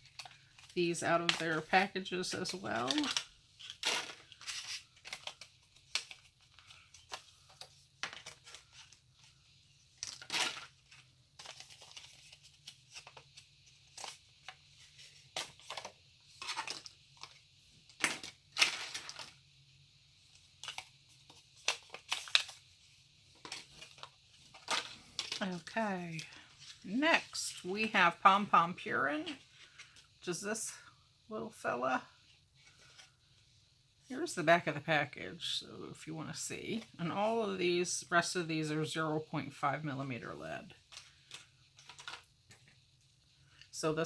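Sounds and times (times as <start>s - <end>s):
plastic packaging crinkling: 0.0s - 19.4s, 20.3s - 28.4s, 40.8s - 42.8s.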